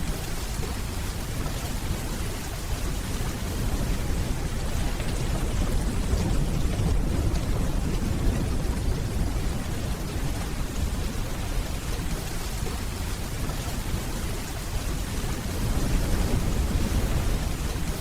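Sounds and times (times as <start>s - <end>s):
steady rainfall: 0.0s - 18.0s
distant thunder rumbling: 3.3s - 13.1s.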